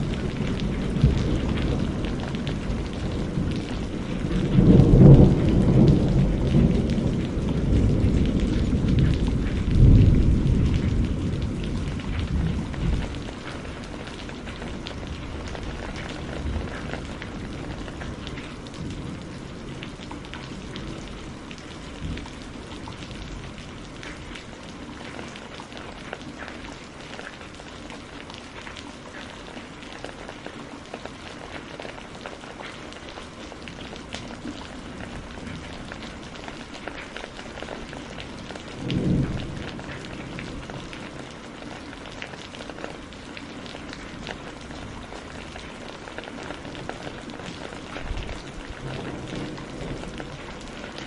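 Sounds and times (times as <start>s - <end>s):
low thunder rumble: 0.0s - 24.4s, 33.8s - 41.7s, 43.5s - 51.0s
steady rain hiss: 0.0s - 51.0s.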